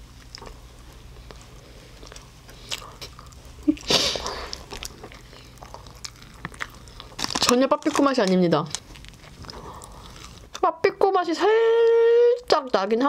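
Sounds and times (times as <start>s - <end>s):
chewing soft bread: 0.0s - 10.6s
plastic wrapping crinkle: 3.6s - 10.5s.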